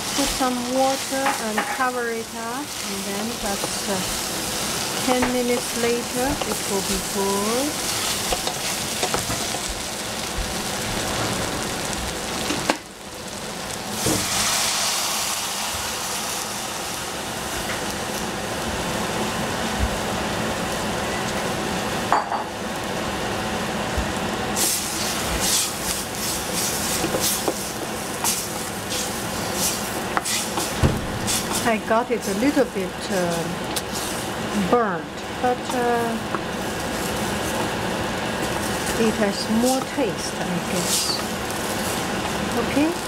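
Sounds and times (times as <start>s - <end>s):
vegetables sizzling in a saucepan: 0.0s - 43.0s
wooden spoon stirring and scraping: 0.2s - 9.8s.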